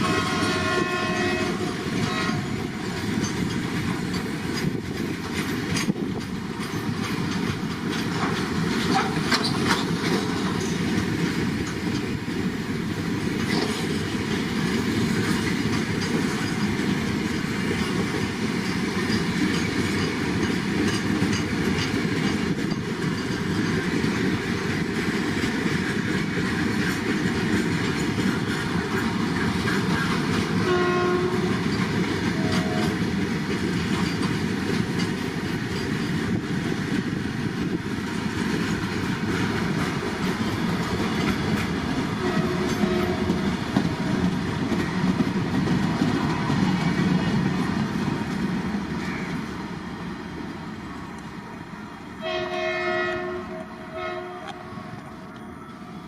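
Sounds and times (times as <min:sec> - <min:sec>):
train horn toots: 0:00.0 - 0:02.8, 0:30.6 - 0:33.1, 0:42.0 - 0:43.6, 0:52.2 - 0:55.0
freight train clickety-clack: 0:00.0 - 0:56.0.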